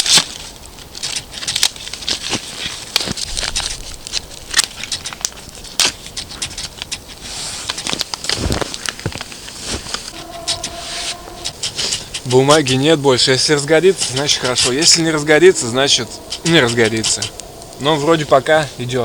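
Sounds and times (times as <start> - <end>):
campfire crackling and popping: 13.7 - 19.0.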